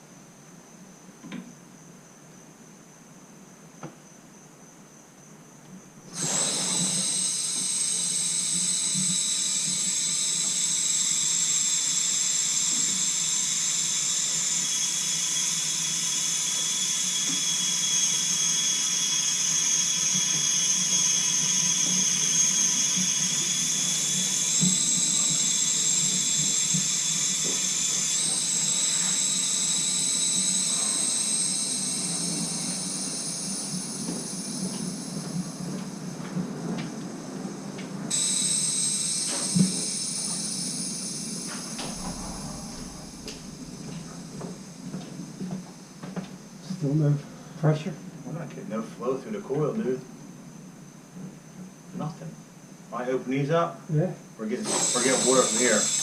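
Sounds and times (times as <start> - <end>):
water rushing through pipe: 6.1 - 35.2, 54.6 - 56.0
high whistle: 6.1 - 35.3, 38.1 - 46.2, 54.6 - 56.0.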